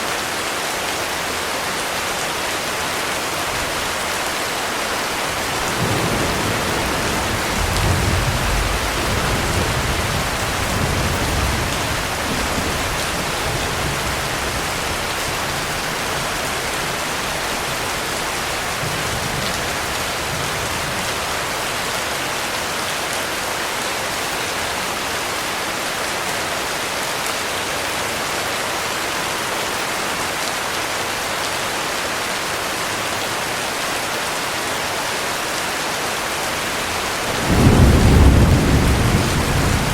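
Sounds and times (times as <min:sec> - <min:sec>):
heavy rain hissing: 0:00.0 - 0:39.9
low thunder rumble: 0:05.3 - 0:21.1, 0:36.9 - 0:39.9.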